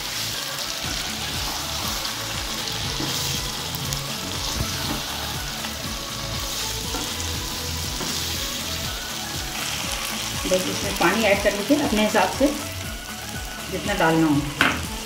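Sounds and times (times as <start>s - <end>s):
chicken sizzling in a pan: 0.0s - 15.0s
wooden spatula scraping a pan: 2.7s - 5.3s.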